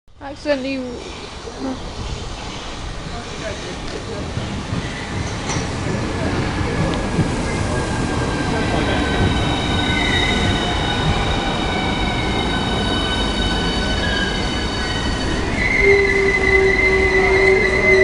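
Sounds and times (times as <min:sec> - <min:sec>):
electric train rumble and whine: 0:00.2 - 0:18.0
train brakes squealing: 0:07.7 - 0:18.0.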